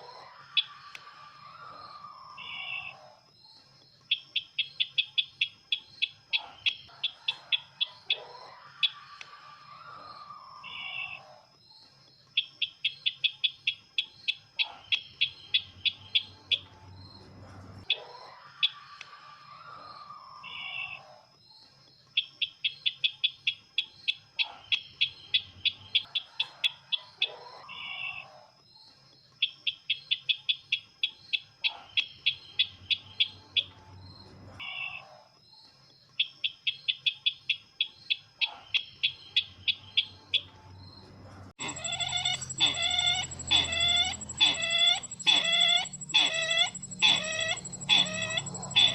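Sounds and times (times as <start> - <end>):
lower falling bird calls: 41.6 - 48.9
sharp high bird chips: 41.6 - 48.9.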